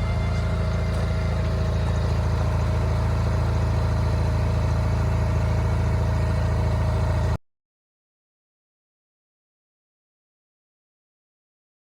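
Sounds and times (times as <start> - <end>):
engine idling: 0.0 - 7.4.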